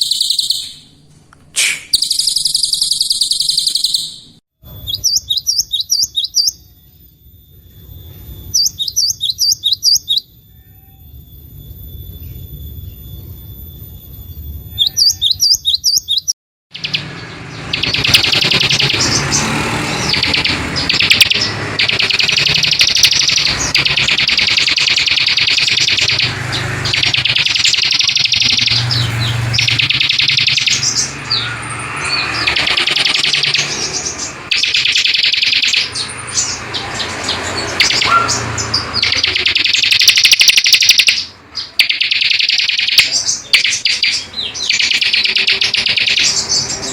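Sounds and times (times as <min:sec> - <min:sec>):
songbird whistle and chirps: 0:00.0 - 0:00.9, 0:01.6 - 0:46.9
buzzy bird trills: 0:01.6 - 0:46.9.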